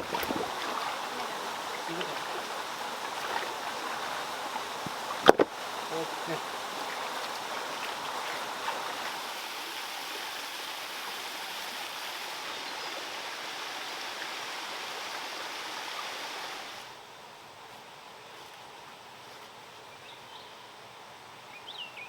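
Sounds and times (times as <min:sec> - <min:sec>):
running water splashing: 0:00.0 - 0:16.9.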